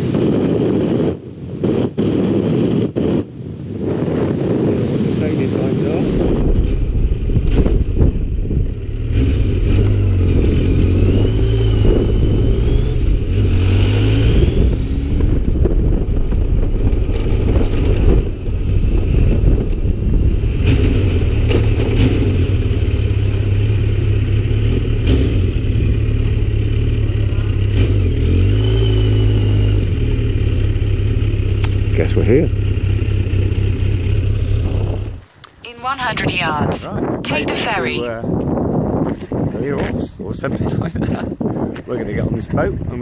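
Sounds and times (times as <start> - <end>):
motorcycle engine accelerating: 3.9 - 35.2.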